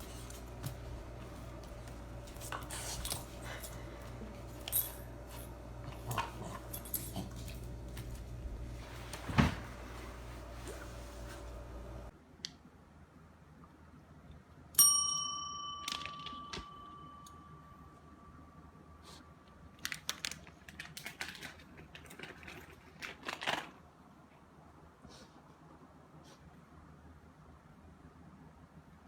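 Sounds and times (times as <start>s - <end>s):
metallic ding ringing: 14.8s - 18.2s.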